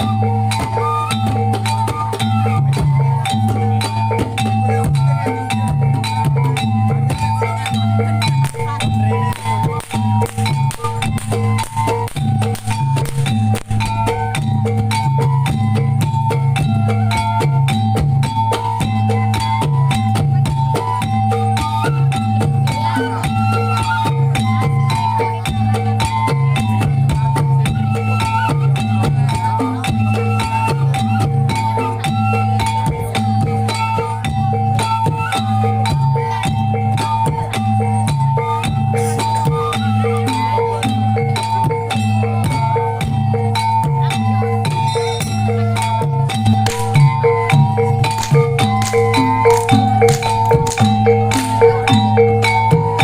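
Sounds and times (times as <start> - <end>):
drums: 0.0 - 53.0
gong-chime percussion: 0.0 - 53.0
sharp wooden strikes: 8.2 - 15.6, 46.3 - 53.0.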